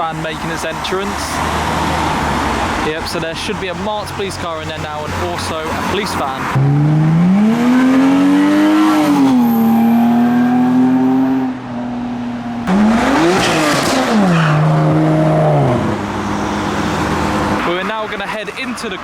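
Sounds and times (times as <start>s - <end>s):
car engine revving: 0.0s - 18.1s.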